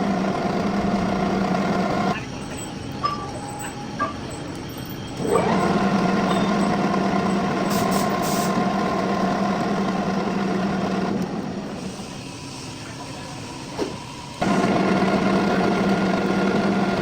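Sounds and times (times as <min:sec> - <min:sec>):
metal lathe humming: 0:00.0 - 0:12.6, 0:14.4 - 0:17.0.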